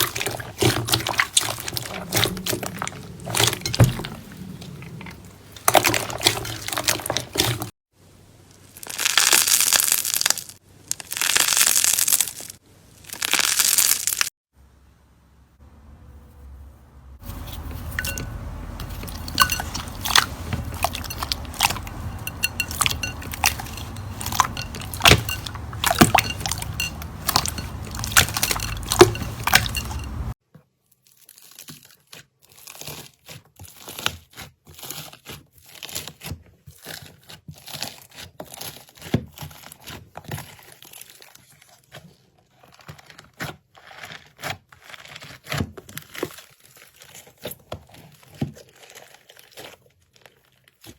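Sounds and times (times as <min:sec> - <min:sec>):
slime crackling and popping: 0:08.7 - 0:14.3.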